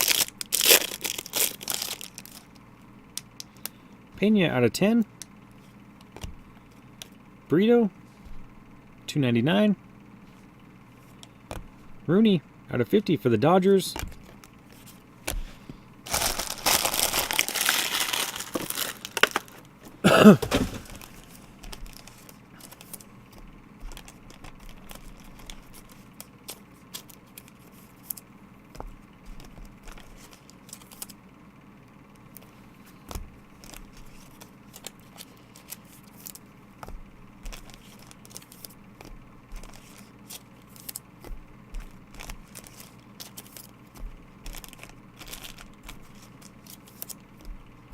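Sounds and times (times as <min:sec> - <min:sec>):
wrapper tearing and crinkling: 0:00.0 - 0:02.5, 0:16.1 - 0:19.6, 0:20.3 - 0:23.0, 0:42.2 - 0:43.7, 0:44.5 - 0:47.2
cards clicking and rustling: 0:00.0 - 0:02.6, 0:13.9 - 0:31.2, 0:32.3 - 0:47.6.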